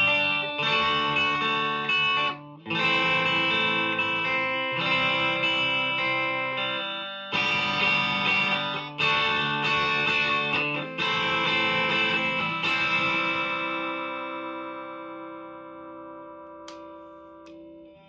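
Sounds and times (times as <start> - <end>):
electric guitar chords ringing: 0.0 - 18.0.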